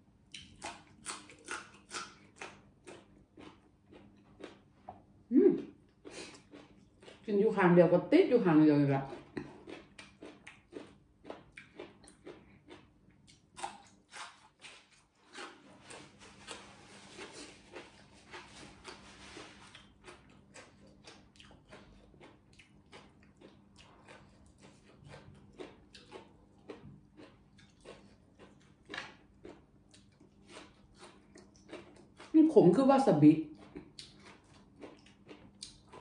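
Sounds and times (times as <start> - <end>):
person chewing food: 0.1 - 7.3, 9.0 - 32.4, 33.4 - 36.0.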